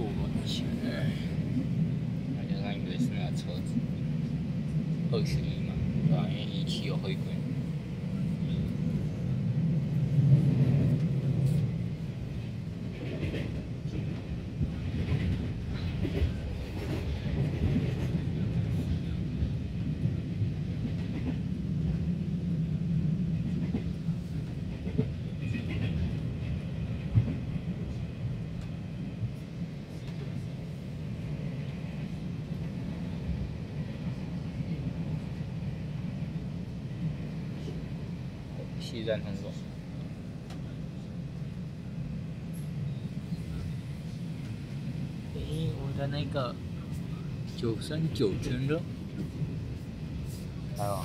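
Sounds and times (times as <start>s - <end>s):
train cabin rumble: 0.0s - 51.0s.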